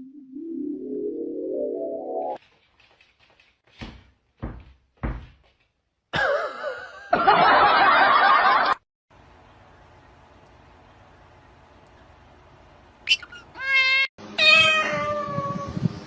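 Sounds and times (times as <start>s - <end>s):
dull thumps: 3.7s - 5.8s.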